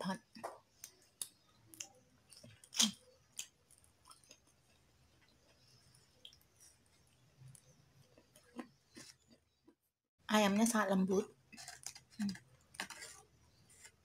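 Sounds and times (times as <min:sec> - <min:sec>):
soft chewing mouth clicks: 0:03.7 - 0:09.4.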